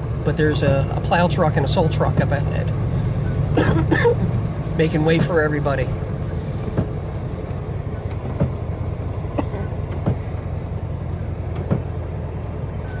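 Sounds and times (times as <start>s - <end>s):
car engine and road rumble: 0.0s - 13.0s
short knocks: 11.5s - 12.0s.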